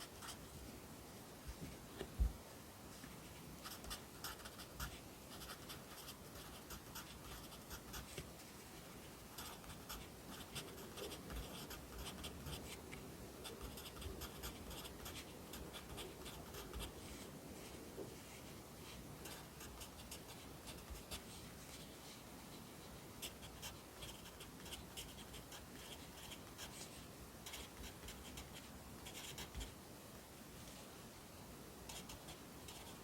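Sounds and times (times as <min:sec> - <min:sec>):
pencil writing on paper: 0:03.6 - 0:08.1, 0:09.4 - 0:12.6, 0:13.4 - 0:17.0, 0:19.2 - 0:21.2, 0:23.2 - 0:26.8, 0:27.4 - 0:29.7, 0:31.9 - 0:33.0.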